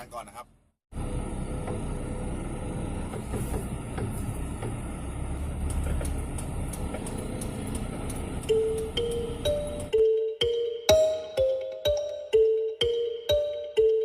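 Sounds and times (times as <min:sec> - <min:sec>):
motor vehicle rumbling: 0:00.4 - 0:10.0.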